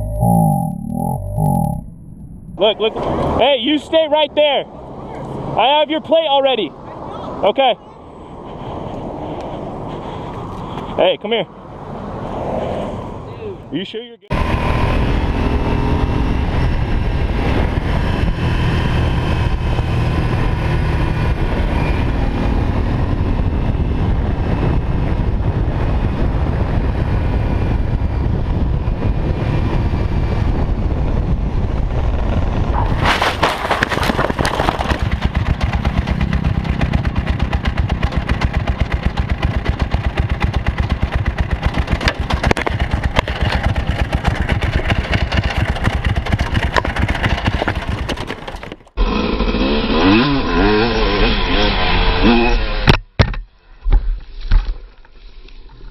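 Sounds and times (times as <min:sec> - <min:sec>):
fast even pulsing: 0:00.0 - 0:03.1, 0:32.5 - 0:50.1
motorcycle engine rumble: 0:00.0 - 0:03.5, 0:14.3 - 0:50.0.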